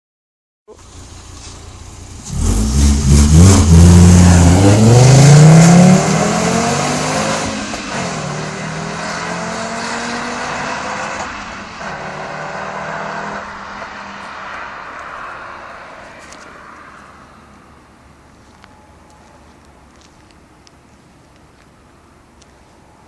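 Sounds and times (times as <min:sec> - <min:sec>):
car engine accelerating: 0:00.7 - 0:16.4.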